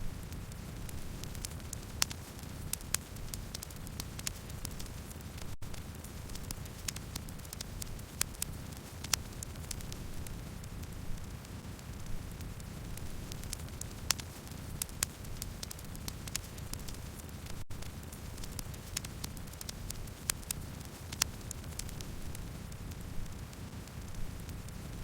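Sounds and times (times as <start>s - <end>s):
campfire crackling and popping: 0.0s - 25.0s
low rumble of flame: 0.0s - 25.0s.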